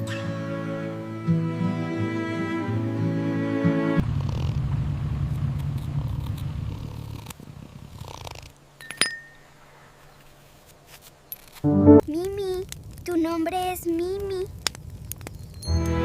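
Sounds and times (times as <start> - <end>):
cello music: 0.0 - 4.0, 11.7 - 12.0
kitten purring: 4.0 - 4.7, 5.3 - 8.6.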